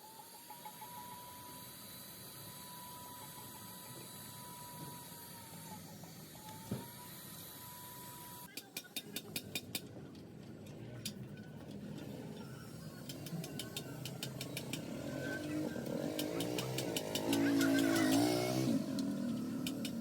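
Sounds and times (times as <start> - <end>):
mechanical ticking and running: 0.0 - 20.0
machine motor humming: 12.4 - 20.0.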